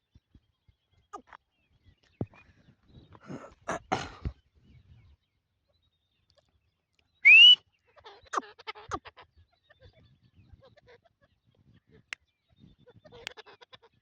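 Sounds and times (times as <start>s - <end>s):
rising whistled note: 7.3s - 7.6s.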